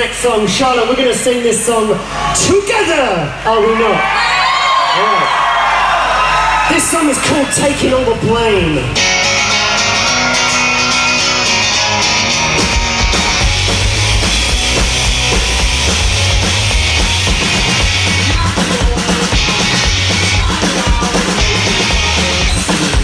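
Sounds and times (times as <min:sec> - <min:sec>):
live rock band playing: 0:07.0 - 0:23.0
electric guitar: 0:08.8 - 0:23.0.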